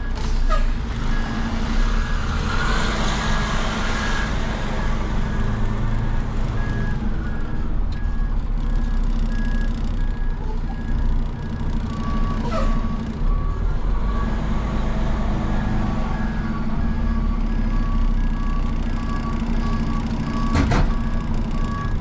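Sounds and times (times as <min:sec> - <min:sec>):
lower-pitched backup beeper: 0:00.0 - 0:22.0
truck engine running: 0:00.0 - 0:22.0
reverse alarm beeping: 0:15.4 - 0:22.0.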